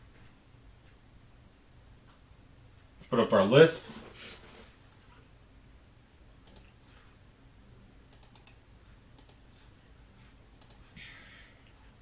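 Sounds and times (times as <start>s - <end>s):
faint low room hum: 0.0s - 12.0s
sharp computer clicks: 6.4s - 6.8s, 8.1s - 8.6s, 9.2s - 9.4s, 10.6s - 10.9s.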